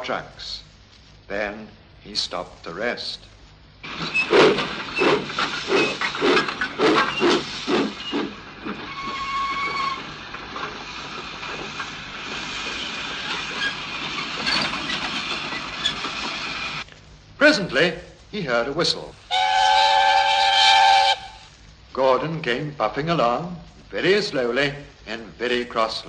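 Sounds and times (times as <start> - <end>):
steam hissing: 3.8 - 16.8, 18.9 - 21.6
steam locomotive puffing: 3.8 - 16.8, 19.2 - 21.6.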